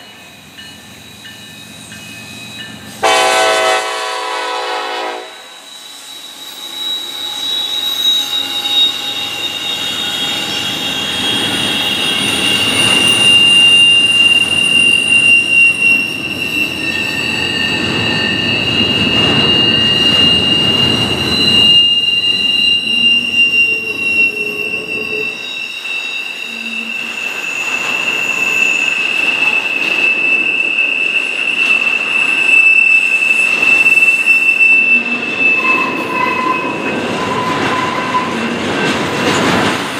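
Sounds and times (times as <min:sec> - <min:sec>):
rumble of train cars: 0:00.0 - 0:39.9
train wheels squealing on rails: 0:00.0 - 0:39.9.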